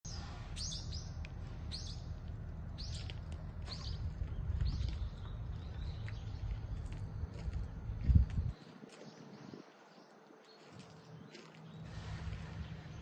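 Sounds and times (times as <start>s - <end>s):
bird chirping: 0.1s - 2.2s, 2.8s - 7.3s
low rumble: 0.1s - 8.7s, 11.8s - 13.0s.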